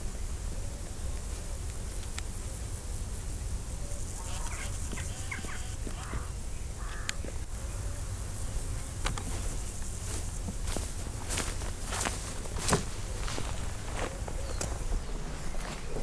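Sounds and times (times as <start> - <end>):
bird squawky calls: 3.8 - 8.2, 13.0 - 16.0.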